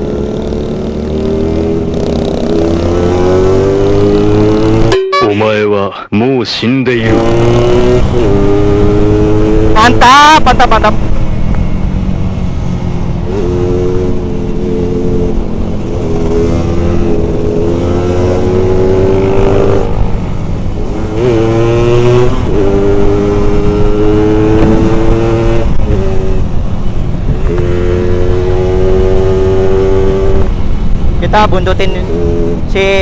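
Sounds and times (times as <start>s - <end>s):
two-stroke engine accelerating: 0.0s - 5.0s, 7.1s - 11.8s, 12.7s - 33.0s
wind rumble on microphone: 19.8s - 33.0s.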